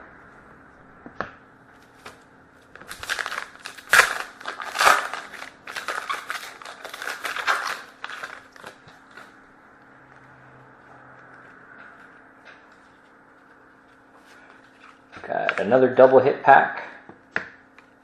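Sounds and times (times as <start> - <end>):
wrapper crinkling and tearing: 2.8 - 9.3.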